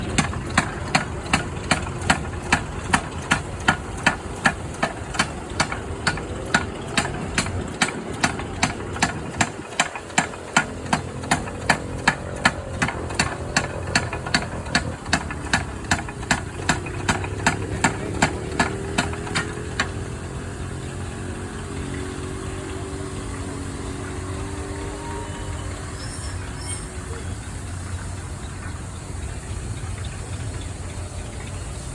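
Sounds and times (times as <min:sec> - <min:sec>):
engine knocking: 0:00.0 - 0:26.0, 0:27.0 - 0:31.9
low engine rumble: 0:00.0 - 0:31.9.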